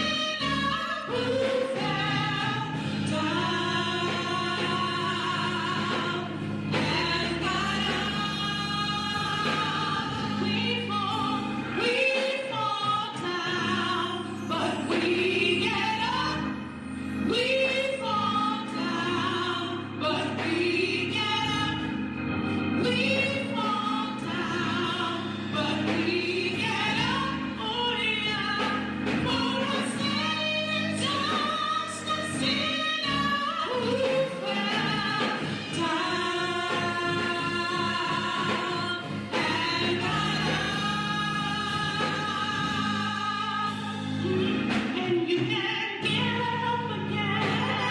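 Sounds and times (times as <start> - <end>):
gospel singing with vibrato: 0.0 - 47.9.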